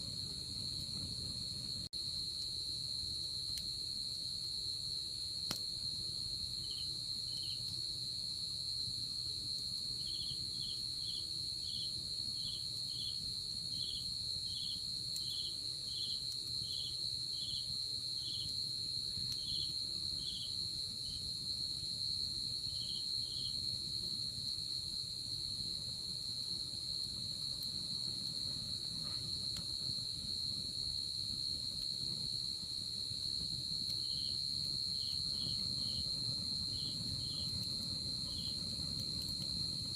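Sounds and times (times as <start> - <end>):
insect chirping: 0.1 - 39.9
insects trilling: 5.5 - 7.8, 9.7 - 21.3, 26.2 - 39.9.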